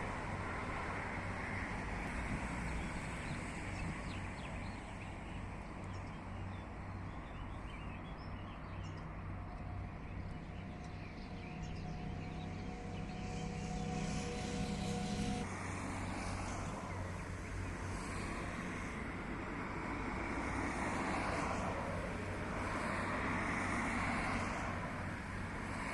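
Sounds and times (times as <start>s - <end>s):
birds chirping: 2.6s - 15.4s
truck diesel engine rumbling: 9.9s - 15.4s
steady whine: 10.3s - 19.6s.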